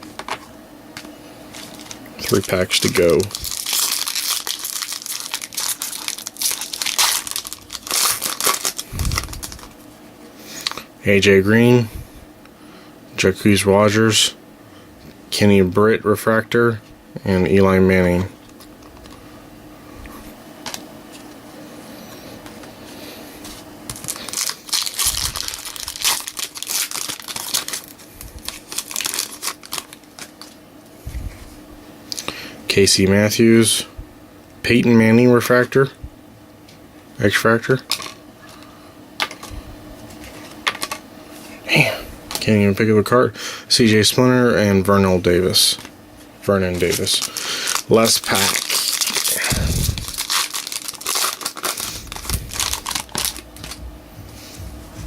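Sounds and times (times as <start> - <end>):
wrapper tearing and crinkling: 1.5 - 9.8, 23.9 - 30.6, 46.7 - 53.8.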